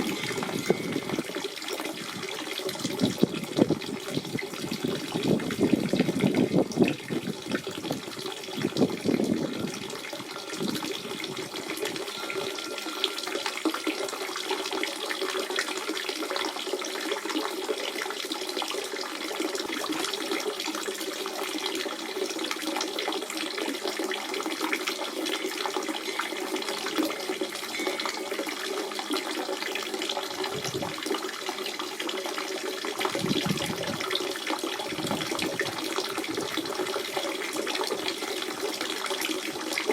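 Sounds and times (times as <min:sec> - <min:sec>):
spring water burbling: 0:00.0 - 0:39.9.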